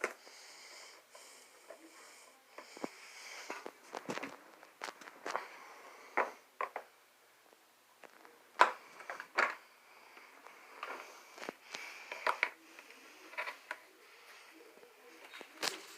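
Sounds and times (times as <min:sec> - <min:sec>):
rustling: 0:02.6 - 0:06.7.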